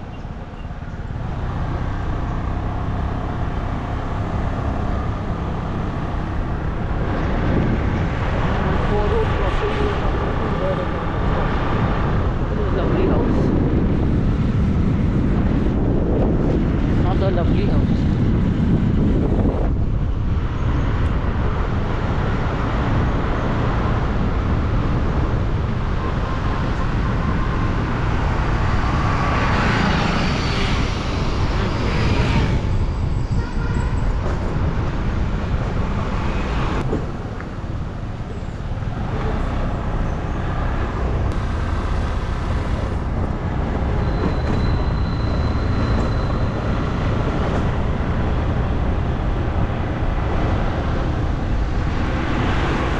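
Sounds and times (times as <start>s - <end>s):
traffic noise: 0.0s - 52.9s
wind rush and road noise: 0.0s - 52.9s.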